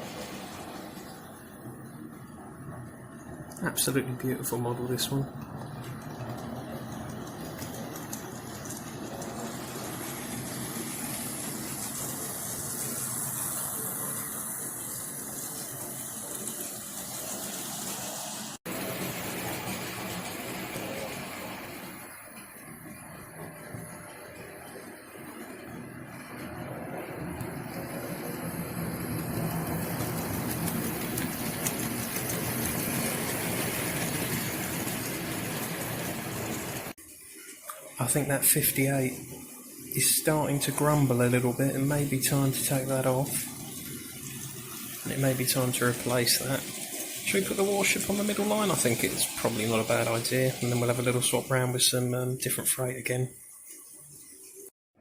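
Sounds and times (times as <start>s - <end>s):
model train motors whirring: 27.4s - 36.9s.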